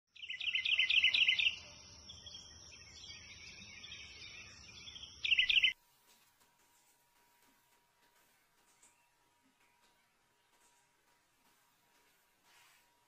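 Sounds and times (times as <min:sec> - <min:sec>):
small birds chirping: 0:00.1 - 0:05.8, 0:08.1 - 0:12.2.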